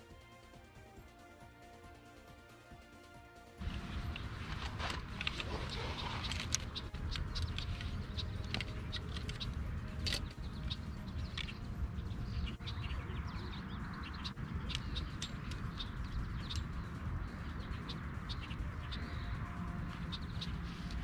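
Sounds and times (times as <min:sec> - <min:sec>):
small birds chirping: 0:03.6 - 0:21.0
steady low rumble: 0:03.6 - 0:21.0
sharp clicks: 0:04.0 - 0:11.7.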